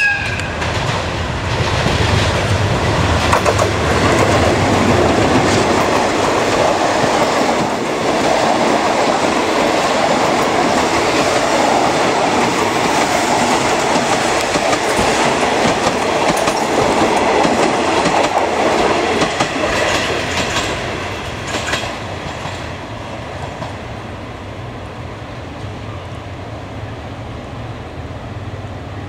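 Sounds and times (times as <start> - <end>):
train wheels clacking over rail joints: 0.2 - 22.8.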